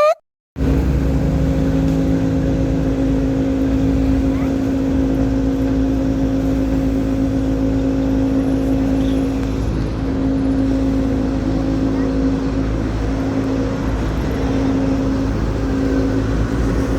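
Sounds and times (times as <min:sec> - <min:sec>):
tram electrical hum: 0:00.6 - 0:16.9.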